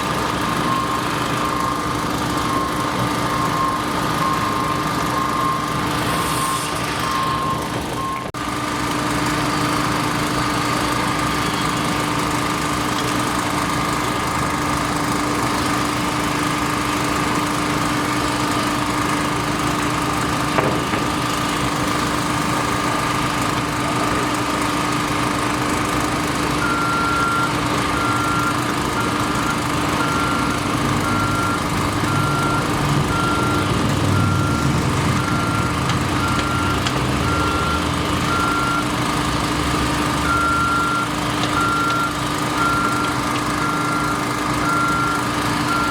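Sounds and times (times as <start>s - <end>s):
construction machinery engines: 0.0s - 45.9s
reversing alarm beeping: 0.1s - 8.3s, 26.5s - 39.3s, 40.2s - 45.9s
higher alarm beeping: 26.7s - 38.9s.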